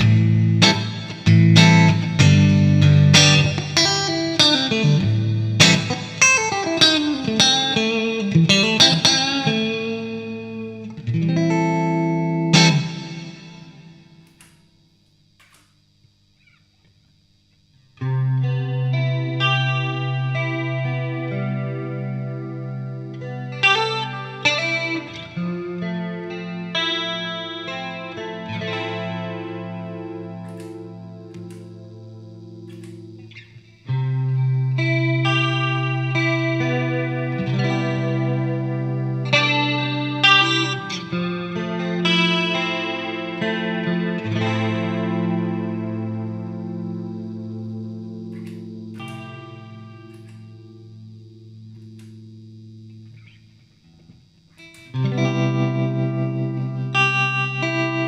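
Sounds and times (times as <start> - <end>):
electric guitar playing: 0.0 - 15.7, 16.3 - 58.0.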